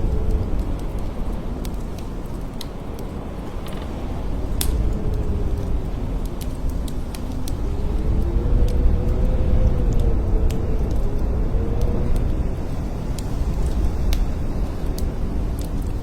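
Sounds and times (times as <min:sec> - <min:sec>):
blizzard wind howling: 0:00.0 - 0:16.0.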